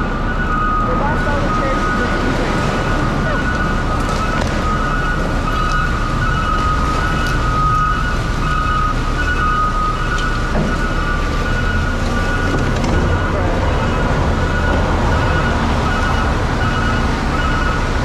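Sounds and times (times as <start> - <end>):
engine and road rumble: 10.2 - 18.0.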